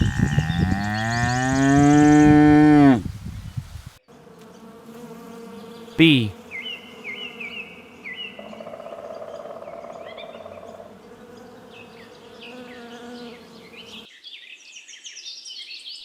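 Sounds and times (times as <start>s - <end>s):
bee buzzing: 0.0s - 8.5s, 10.4s - 14.0s.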